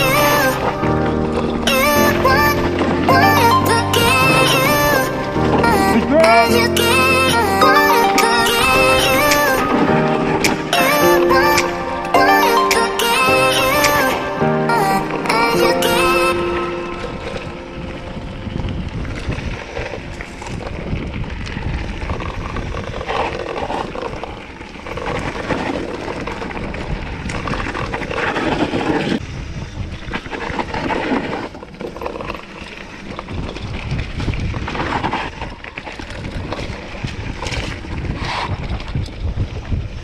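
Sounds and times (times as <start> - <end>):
wind buffeting microphone: 14.7 - 40.0.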